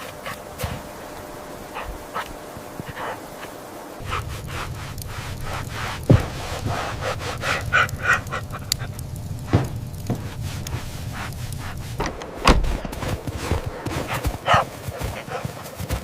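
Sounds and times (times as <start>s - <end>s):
dog panting: 0.0s - 12.1s, 12.8s - 16.0s
steady low hum: 0.0s - 15.8s
crunching: 0.0s - 16.0s.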